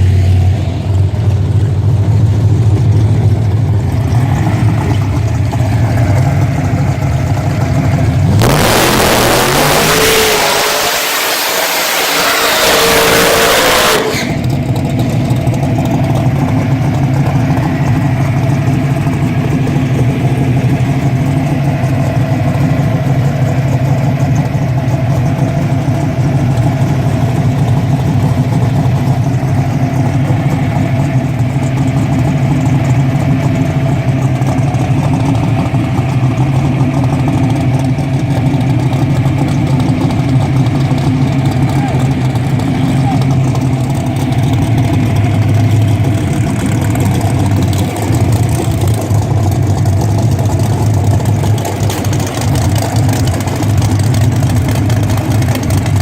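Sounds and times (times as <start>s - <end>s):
drag car engine idling: 0.0s - 56.0s
loud rush of noise: 7.6s - 14.6s.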